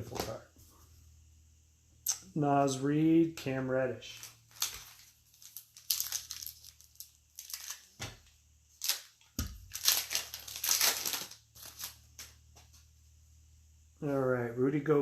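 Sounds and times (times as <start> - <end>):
foil wrapper tearing and crinkling: 4.1 - 8.1, 8.8 - 12.4.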